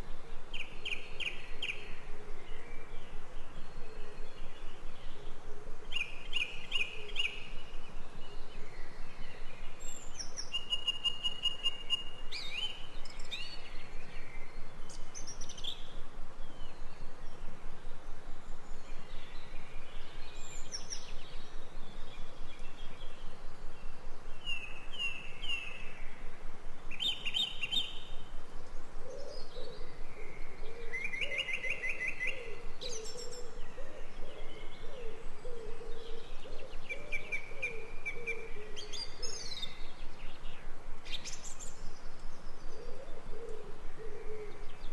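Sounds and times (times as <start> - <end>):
steady background hiss: 0.0 - 44.9
birds chirping and trilling: 0.5 - 44.9
lower repeated bird call: 26.9 - 41.9.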